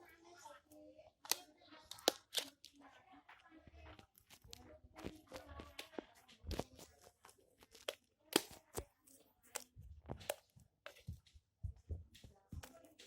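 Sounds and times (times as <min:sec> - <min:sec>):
wet clicks and pops: 0:01.2 - 0:02.7, 0:04.2 - 0:08.9.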